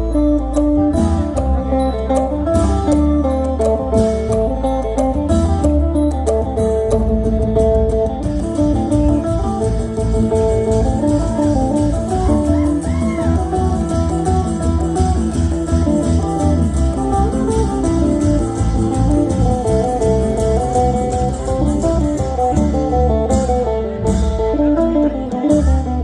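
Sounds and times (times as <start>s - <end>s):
plucked-string melody: 0.0s - 26.0s
heavy bass beat: 6.6s - 26.0s.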